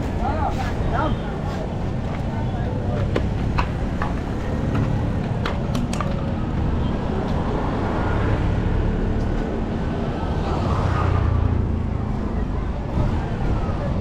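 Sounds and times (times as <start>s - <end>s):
vehicle engines rumbling: 0.0s - 14.0s.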